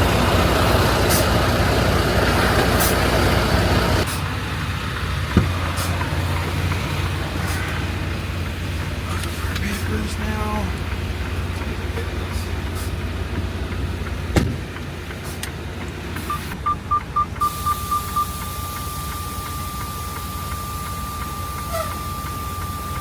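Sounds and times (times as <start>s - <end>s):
diesel engine idling: 0.0s - 23.0s
electronic warning beeps: 16.2s - 23.0s.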